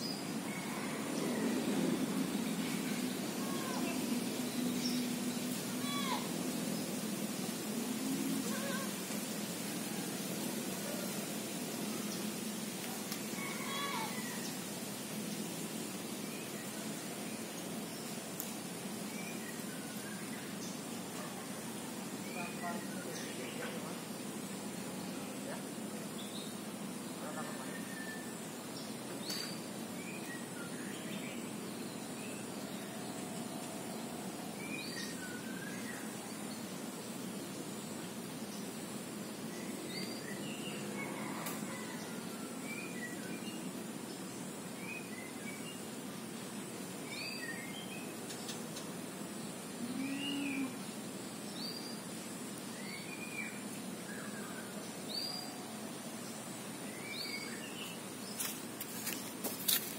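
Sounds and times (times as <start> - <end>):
rural background noise: 0.0 - 59.9
steady background hiss: 0.0 - 59.9
birds chirping: 16.2 - 59.9.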